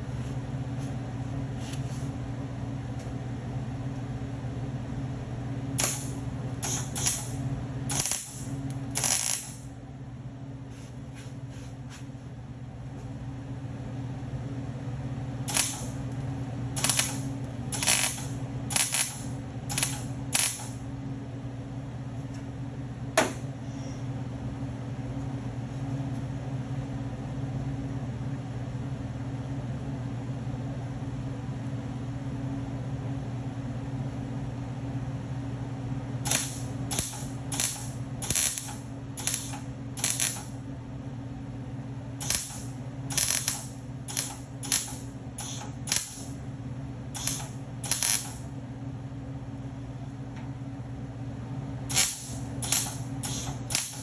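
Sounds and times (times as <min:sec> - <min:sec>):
welding crackle bursts: 0:05.8 - 0:09.7, 0:15.4 - 0:16.0, 0:16.8 - 0:20.8, 0:36.2 - 0:40.6, 0:42.2 - 0:46.4, 0:47.2 - 0:48.4, 0:51.9 - 0:54.0.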